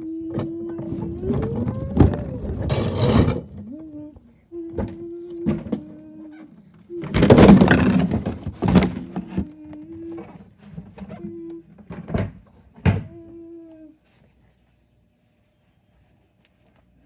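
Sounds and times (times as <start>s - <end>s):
bin clattering and knocking: 0.4s - 3.7s, 7.0s - 9.5s.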